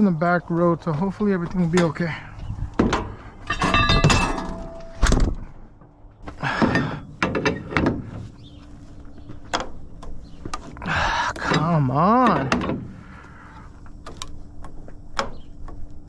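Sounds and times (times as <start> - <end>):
metallic knocks and clanks: 2.7 - 8.4, 11.4 - 13.0.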